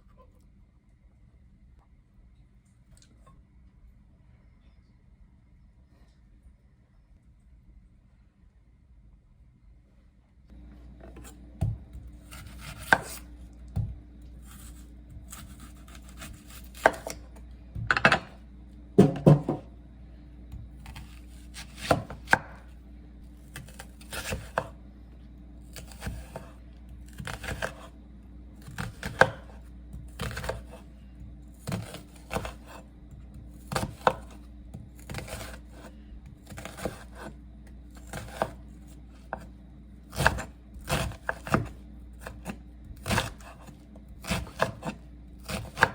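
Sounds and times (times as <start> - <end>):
low hum: 10.5 - 35.1
knife chopping on cutting board: 11.0 - 18.4, 19.0 - 19.7, 20.5 - 22.6, 23.5 - 24.8, 25.7 - 27.9, 28.6 - 37.3, 38.0 - 38.6, 39.2 - 39.5, 40.1 - 45.9.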